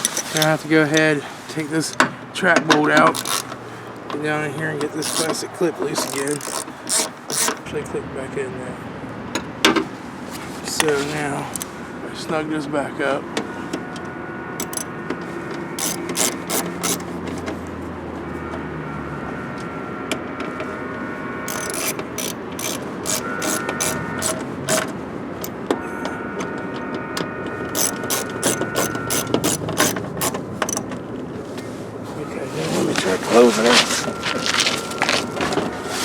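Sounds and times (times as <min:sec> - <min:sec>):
ratchet wrench clicking: 0:03.1 - 0:03.6, 0:05.0 - 0:05.4, 0:06.0 - 0:07.6, 0:14.6 - 0:14.9, 0:15.8 - 0:17.0, 0:21.5 - 0:24.9, 0:27.8 - 0:30.8.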